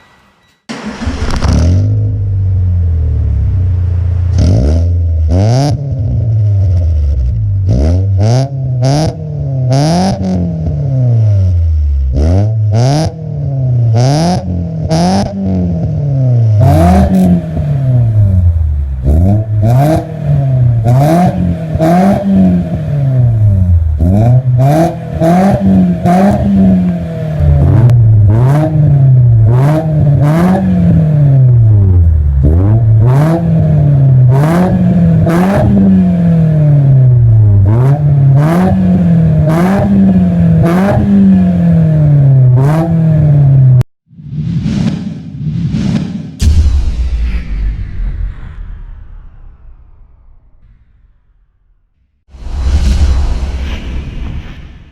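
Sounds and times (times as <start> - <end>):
car engine revving: 0.7 - 43.8.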